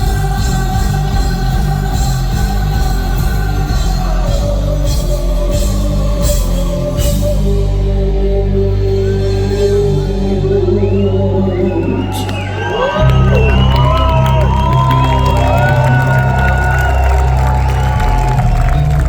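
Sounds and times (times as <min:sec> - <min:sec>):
drums with cymbal crashes: 0:00.0 - 0:07.6
bass guitar: 0:00.0 - 0:19.0
distorted guitars: 0:00.0 - 0:19.0.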